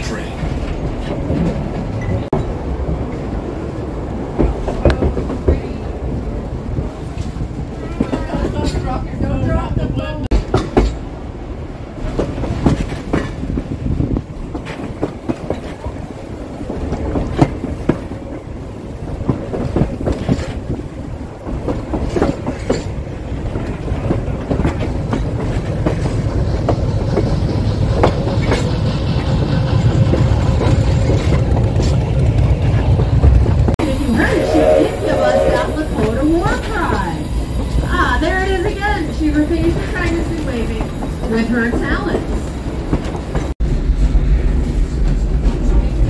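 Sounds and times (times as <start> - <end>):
low train rumble: 0.0 - 46.0
train wheels clacking: 10.3 - 11.2, 12.0 - 46.0.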